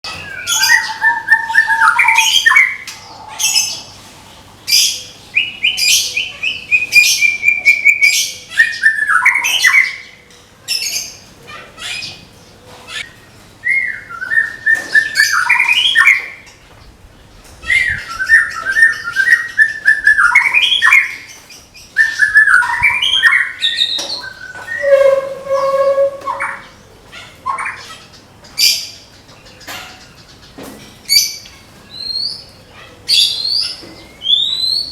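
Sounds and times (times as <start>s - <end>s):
bird singing whistled phrases: 0.2s - 2.8s, 13.7s - 16.3s, 17.7s - 21.2s, 22.0s - 26.7s.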